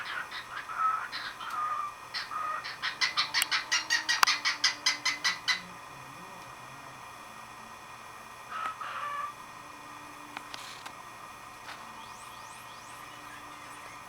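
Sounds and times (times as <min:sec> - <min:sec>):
cockatiel call: 0:00.0 - 0:05.8, 0:08.5 - 0:09.5
soft high rising chirps: 0:11.7 - 0:14.0.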